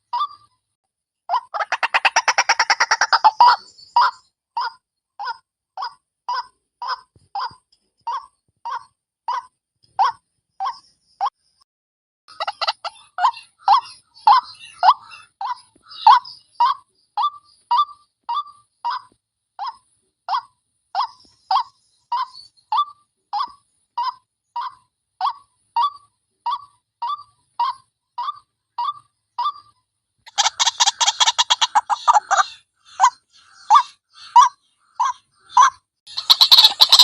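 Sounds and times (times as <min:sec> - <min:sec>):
waterhen harsh calls: 0:01.3 - 0:04.2, 0:12.3 - 0:16.8, 0:30.3 - 0:37.0.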